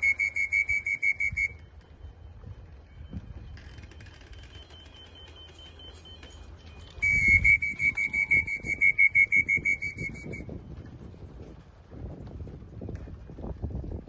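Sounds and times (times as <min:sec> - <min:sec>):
faint high beep: 0:00.0 - 0:10.2.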